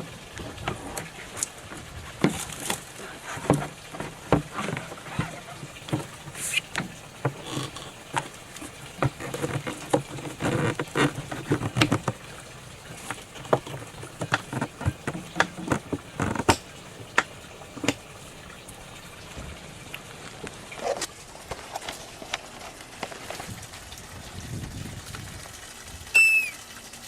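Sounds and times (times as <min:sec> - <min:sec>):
irregular clicks and knocks: 0:00.6 - 0:18.1.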